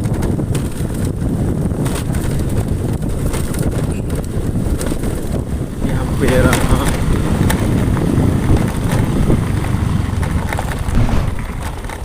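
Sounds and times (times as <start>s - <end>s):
wind buffeting microphone: 0.0s - 12.0s
low rumble: 5.0s - 12.0s.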